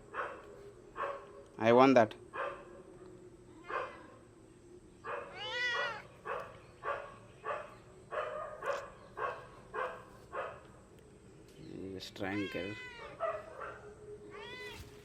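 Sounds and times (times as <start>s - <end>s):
cat meowing: 5.3s - 6.1s, 12.3s - 13.2s, 14.3s - 14.9s.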